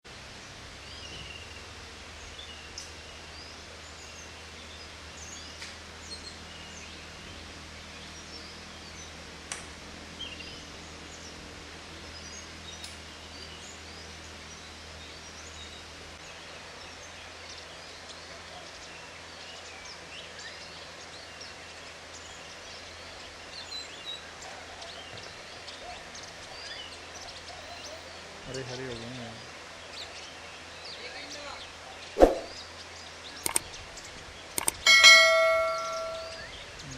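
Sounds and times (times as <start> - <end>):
small birds chirping: 0.2 - 36.9
sharp clicks: 33.4 - 33.8, 34.6 - 36.5.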